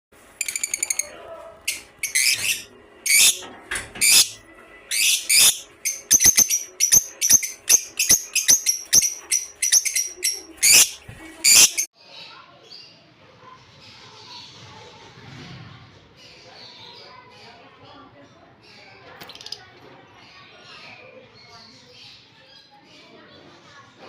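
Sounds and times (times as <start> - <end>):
kingfishers calling: 4.0 - 11.9.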